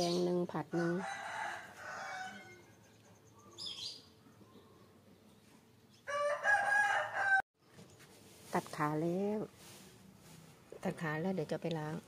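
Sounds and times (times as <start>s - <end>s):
birds chirping: 0.0s - 0.4s, 2.4s - 6.2s
rooster crowing: 0.7s - 2.7s, 6.1s - 7.4s.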